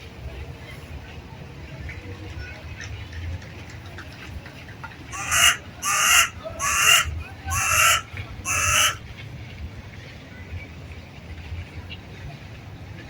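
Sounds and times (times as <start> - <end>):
bird harsh calls: 5.1 - 9.0.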